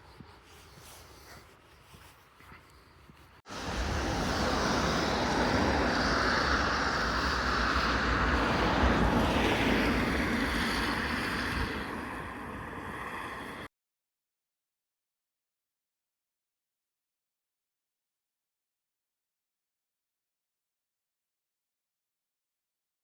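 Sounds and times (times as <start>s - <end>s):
wind buffeting microphone: 3.0s - 13.7s.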